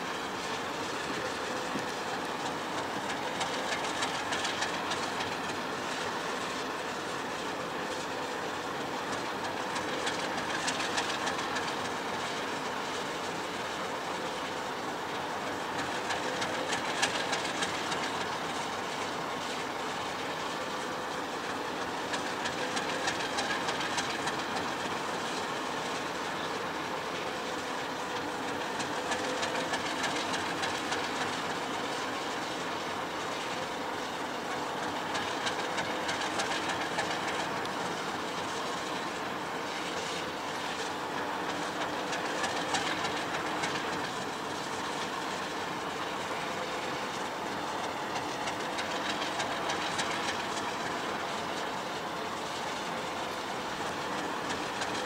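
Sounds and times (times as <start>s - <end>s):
faint steady whine: 0.0s - 55.0s
train rumbling on rails: 0.0s - 55.0s
wheel clicks over rail joints: 15.8s - 18.7s, 41.5s - 47.1s.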